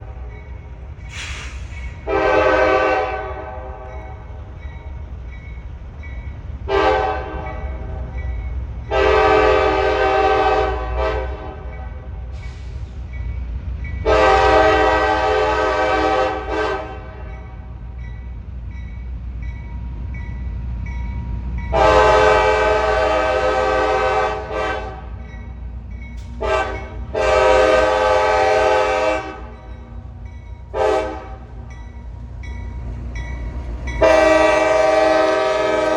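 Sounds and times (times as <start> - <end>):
low rumble of moving train: 0.0 - 35.9
locomotive air horn blasts: 2.0 - 4.0, 6.7 - 7.6, 8.9 - 11.8, 14.0 - 17.5, 21.7 - 25.2, 26.3 - 29.8, 30.7 - 31.8, 34.0 - 35.9.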